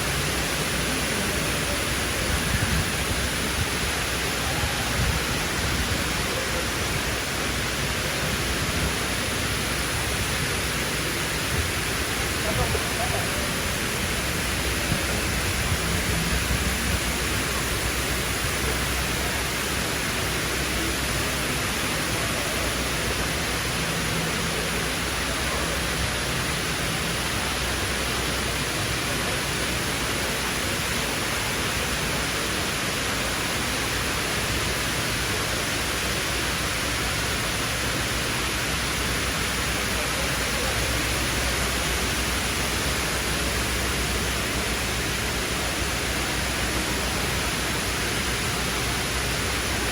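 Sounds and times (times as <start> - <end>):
indoor waterfall rushing: 0.0 - 49.9.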